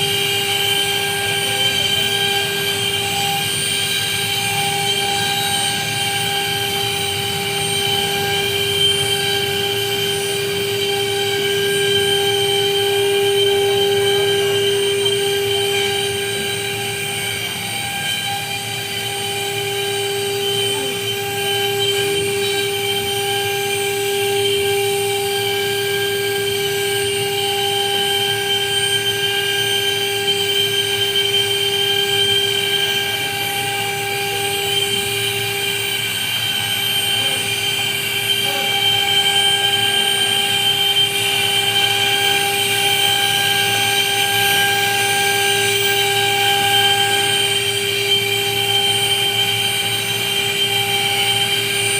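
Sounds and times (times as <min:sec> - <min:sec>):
machine high-pitched whine: 0:00.0 - 0:51.9.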